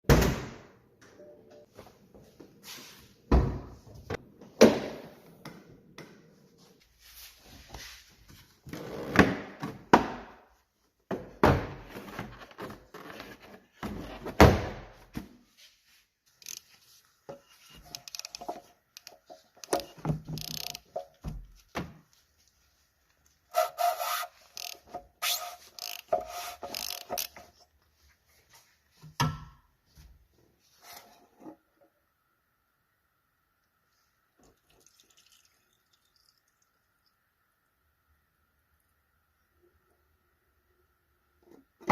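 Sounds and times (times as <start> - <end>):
tools and parts knocking and scraping: 16.4 - 21.6, 23.5 - 27.6.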